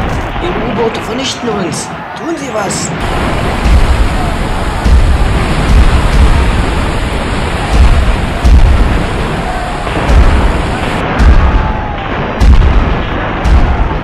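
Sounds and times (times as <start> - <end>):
continuous rumbling din: 0.0 - 14.0
explosion booms: 2.9 - 14.0.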